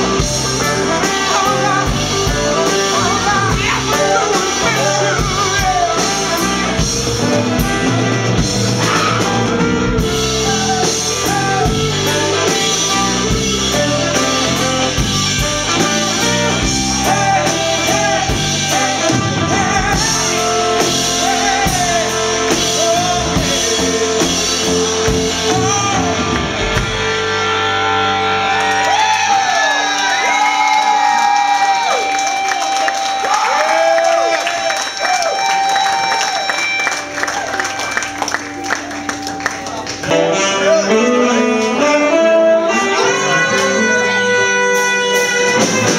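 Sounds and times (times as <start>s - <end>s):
person singing: 0.0s - 26.6s, 40.1s - 45.9s
bass guitar: 0.0s - 45.9s
drum kit: 0.0s - 45.9s
electric guitar: 0.0s - 45.9s.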